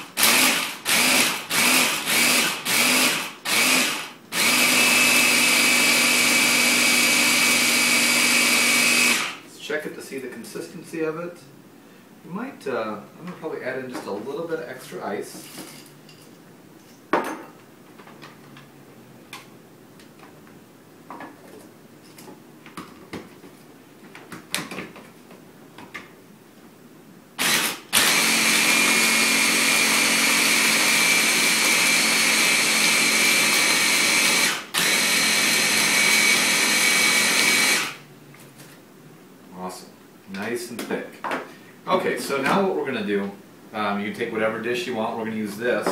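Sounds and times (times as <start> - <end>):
blender blending ice: 0.0 - 9.4, 27.4 - 38.0.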